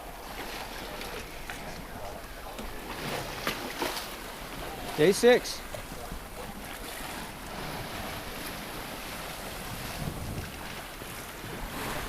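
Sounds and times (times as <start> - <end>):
sea wash: 0.0 - 12.0
wind noise: 5.7 - 12.0.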